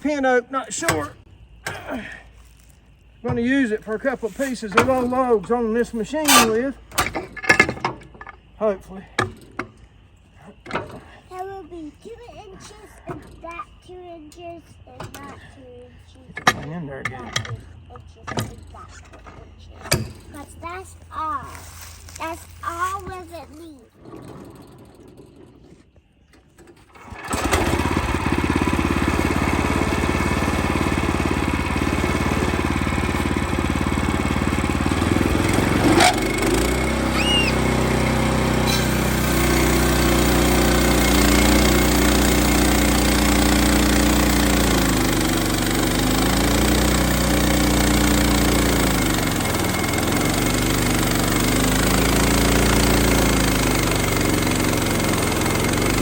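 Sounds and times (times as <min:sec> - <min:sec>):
sawmill engine running: 0:00.0 - 0:01.8, 0:03.3 - 0:07.2, 0:26.8 - 0:56.0.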